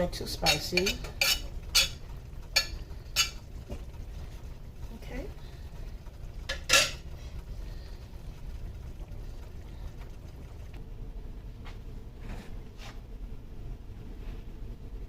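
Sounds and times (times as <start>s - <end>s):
steady low hum: 0.0s - 15.0s
cookware clacking: 0.1s - 3.4s, 6.5s - 7.0s.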